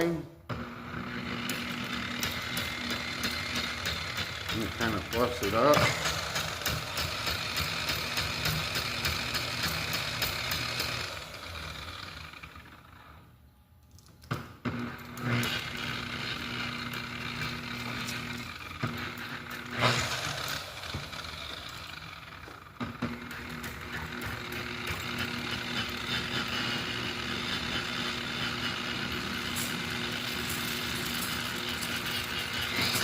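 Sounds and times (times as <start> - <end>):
buffer motor running: 14.7 - 33.0.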